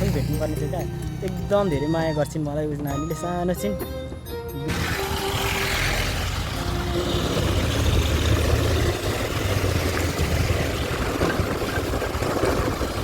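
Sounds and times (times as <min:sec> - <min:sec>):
motorcycle engine: 0:00.0 - 0:01.6, 0:04.7 - 0:13.0
road noise: 0:00.0 - 0:13.0.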